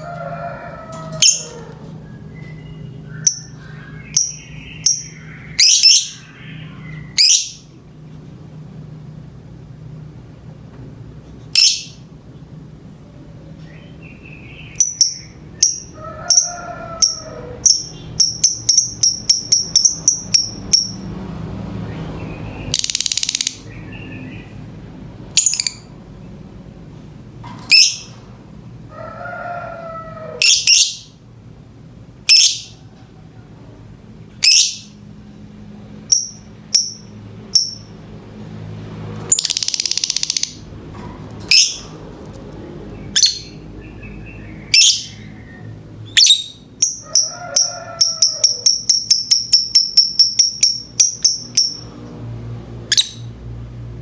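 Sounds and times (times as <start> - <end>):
lovebird chirping and shrieking: 1.2 - 1.6, 2.3 - 7.7, 11.6 - 12.0, 30.4 - 31.2, 32.3 - 32.8, 34.4 - 35.0, 41.5 - 41.9, 44.7 - 45.3, 46.1 - 51.8.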